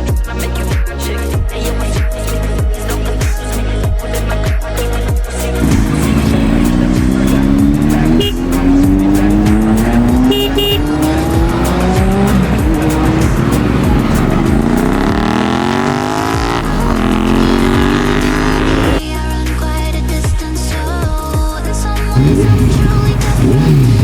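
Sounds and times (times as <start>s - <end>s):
motorcycle engines revving: 5.4s - 19.0s, 22.2s - 24.0s.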